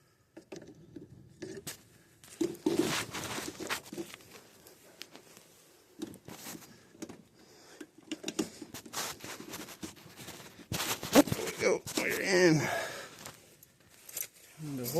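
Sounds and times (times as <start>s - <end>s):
hands and tools clicking on wiring: 0.4s - 12.2s.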